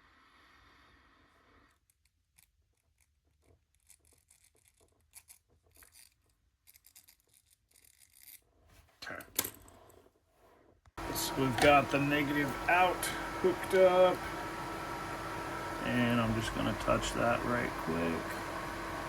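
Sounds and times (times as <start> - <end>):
small parts clicking and tapping: 1.7 - 8.4.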